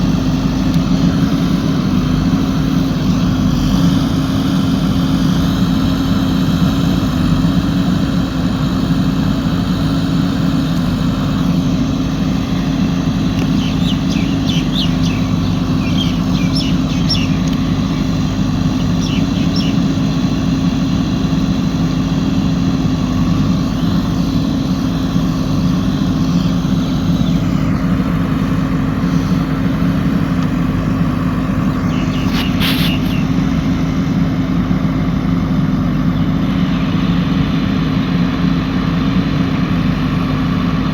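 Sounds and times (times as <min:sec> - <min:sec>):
diesel engine running steadily: 0:00.0 - 0:40.9.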